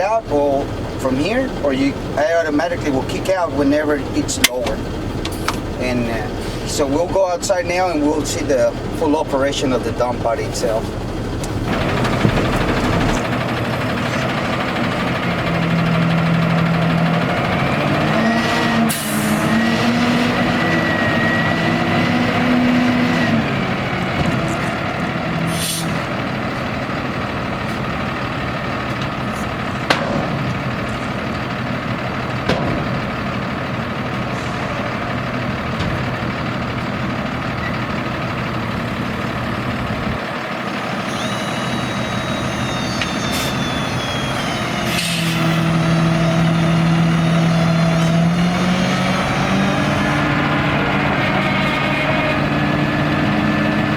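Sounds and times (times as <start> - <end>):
diesel engine idling: 0.0 - 53.9
pitched drone: 38.8 - 53.9.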